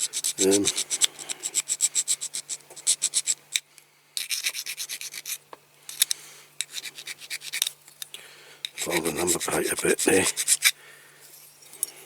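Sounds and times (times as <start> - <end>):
hand file rasping on metal: 0.0 - 3.4, 4.2 - 5.4, 8.8 - 10.8.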